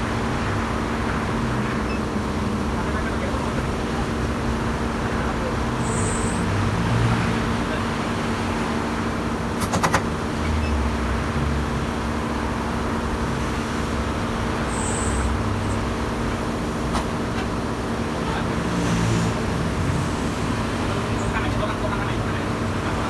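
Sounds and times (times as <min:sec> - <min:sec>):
vehicle engine idling: 0:00.0 - 0:23.0
sharp clicks: 0:09.6 - 0:10.2.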